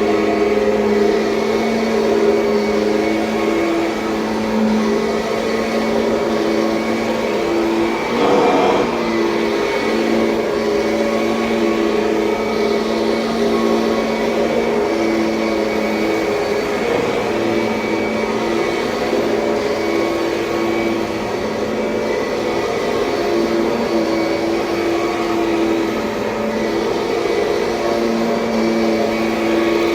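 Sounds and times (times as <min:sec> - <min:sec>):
vacuum cleaner running: 0:00.0 - 0:29.9.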